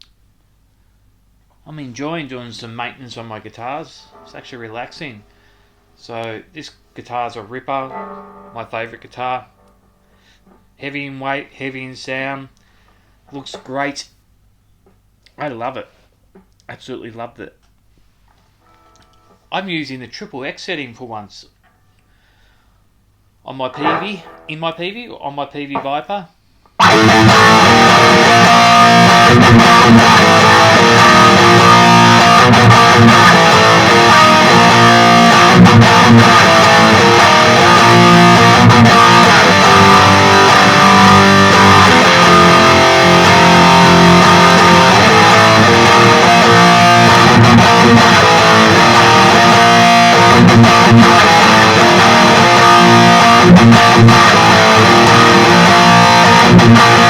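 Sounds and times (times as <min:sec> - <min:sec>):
electric guitar riffs and strums: 0:26.8 - 0:57.0.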